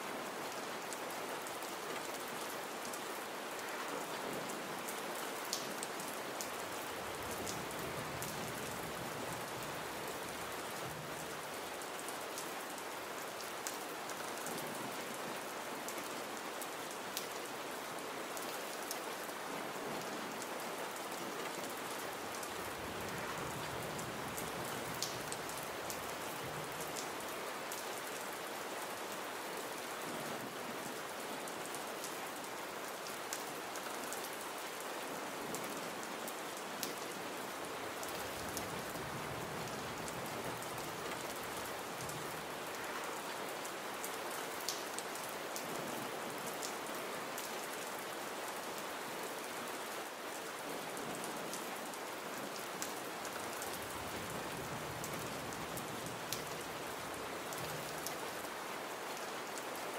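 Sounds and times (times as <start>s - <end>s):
gentle rain hiss: 0.0s - 59.9s
raindrop ticks: 25.0s - 26.0s.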